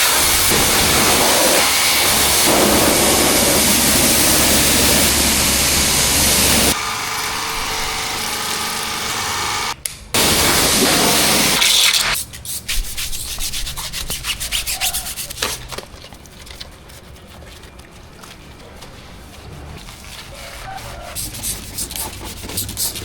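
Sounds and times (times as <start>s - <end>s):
pressure washer spraying water: 0.0s - 12.6s
rubbing and clicking: 11.6s - 23.0s.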